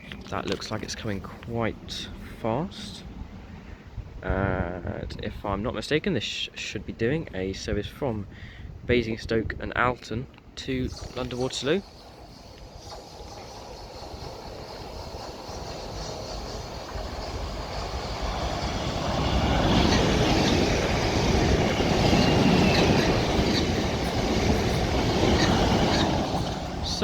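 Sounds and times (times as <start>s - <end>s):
train wheels on rail: 10.8s - 27.0s.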